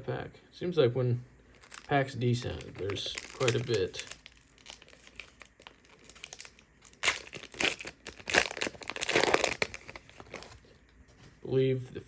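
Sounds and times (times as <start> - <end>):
foil wrapper crinkling and tearing: 1.5 - 10.6.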